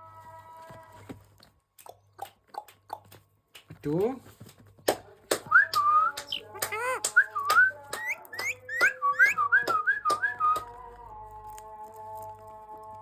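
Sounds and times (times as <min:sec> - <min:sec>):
parrot whistling swooping notes: 0:08.0 - 0:09.7.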